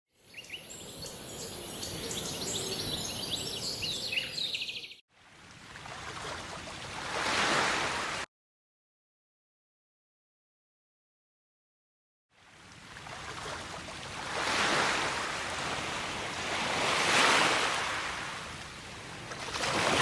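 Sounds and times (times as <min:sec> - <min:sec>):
birds chirping: 0:00.1 - 0:05.0
steady high-pitched hiss: 0:00.3 - 0:04.8.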